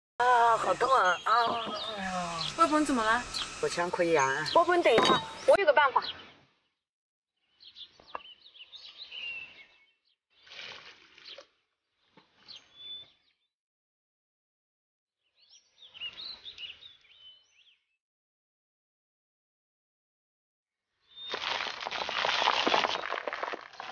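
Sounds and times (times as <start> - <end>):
small birds chirping: 0.2 - 6.8, 7.4 - 13.5, 15.2 - 18.0
faint outdoor background: 0.2 - 13.5.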